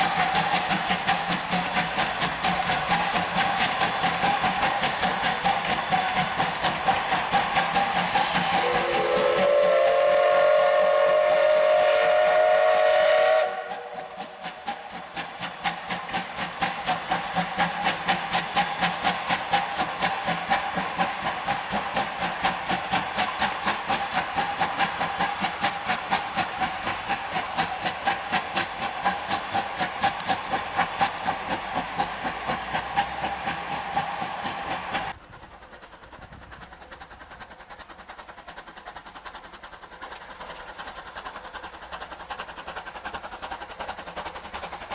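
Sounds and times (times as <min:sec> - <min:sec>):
steam locomotive chuffing: 0:00.0 - 0:44.9
train running noise: 0:00.0 - 0:44.9
steam whistle chord: 0:08.2 - 0:14.3.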